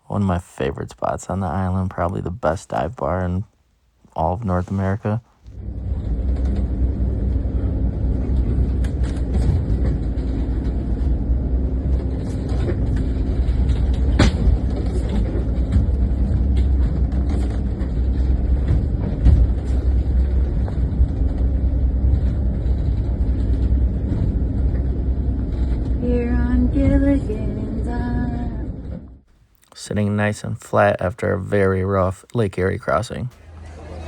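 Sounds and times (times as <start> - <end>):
engine droning: 4.2 - 29.2.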